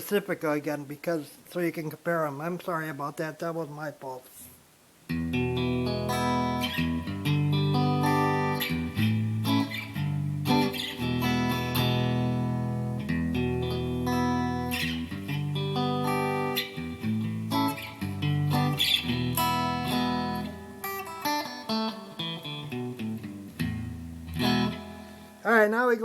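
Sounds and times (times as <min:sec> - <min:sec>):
electric guitar notes and chords: 0:05.1 - 0:25.4.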